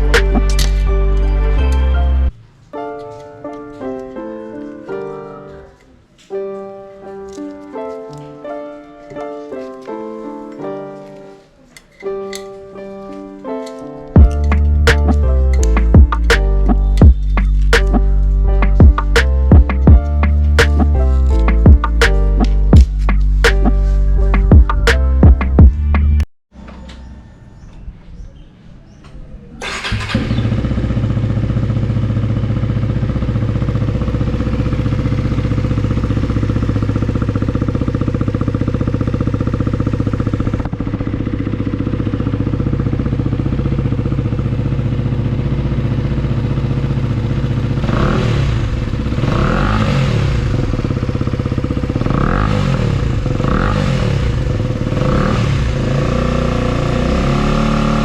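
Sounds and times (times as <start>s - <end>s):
motorcycle engine idling: 29.6s - 57.6s
engine revving: 29.6s - 58.0s.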